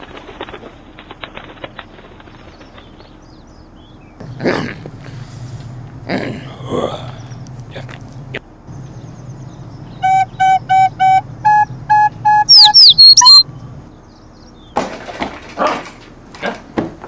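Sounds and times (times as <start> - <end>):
falling whistled chirps: 10.0 - 13.4
short piped notes: 10.0 - 13.4.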